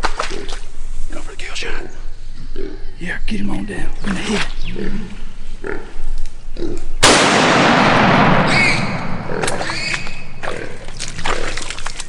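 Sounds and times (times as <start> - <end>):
rifle shot: 7.0 - 9.6
hog squealing: 8.5 - 10.3.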